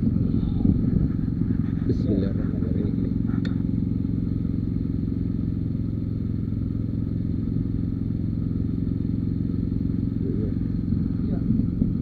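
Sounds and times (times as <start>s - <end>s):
heavy machinery engine throbbing: 10.1s - 12.0s.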